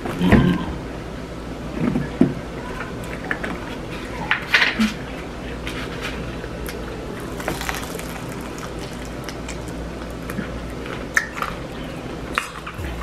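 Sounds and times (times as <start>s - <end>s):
chewing with crunches: 6.5s - 13.0s
steady low hum: 11.6s - 13.0s.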